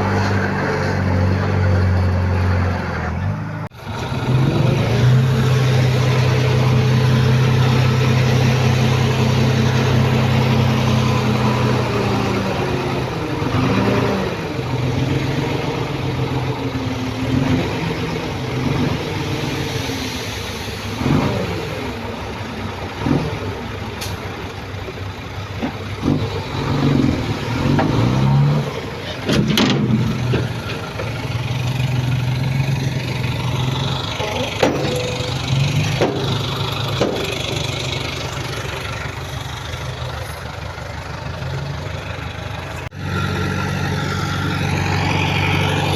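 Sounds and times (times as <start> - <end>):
heavy machinery diesel engine revving: 0.0 - 45.9
knocks: 37.0 - 37.4.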